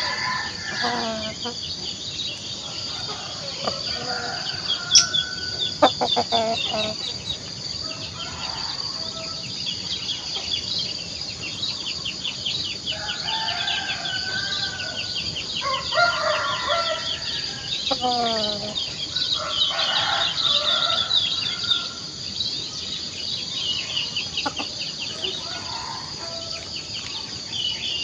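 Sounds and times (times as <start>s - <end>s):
rooster crowing: 0.0s - 1.6s, 2.6s - 7.0s, 7.8s - 9.5s, 12.9s - 22.0s, 25.1s - 26.6s
hens clucking: 0.0s - 7.5s, 24.2s - 26.6s
small birds chirping: 0.0s - 28.0s.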